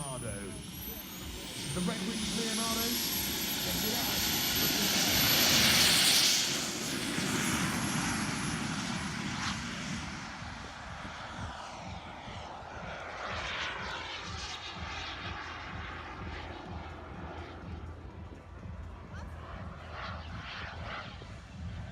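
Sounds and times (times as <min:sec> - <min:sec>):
thin high whine: 0:00.0 - 0:10.6
model jet turbine roaring: 0:00.0 - 0:21.9.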